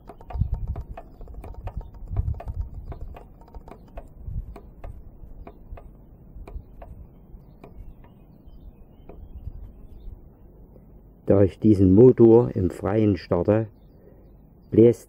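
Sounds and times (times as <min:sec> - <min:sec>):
engine mechanical clicking: 0:00.0 - 0:08.4
low wind rumble: 0:00.0 - 0:14.8.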